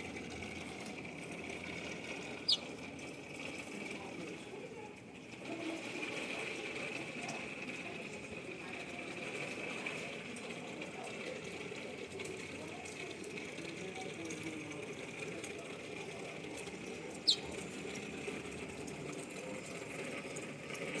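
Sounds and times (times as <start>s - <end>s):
steady background hum: 0.0s - 21.0s
small bird chirp: 2.4s - 2.7s, 17.2s - 17.6s.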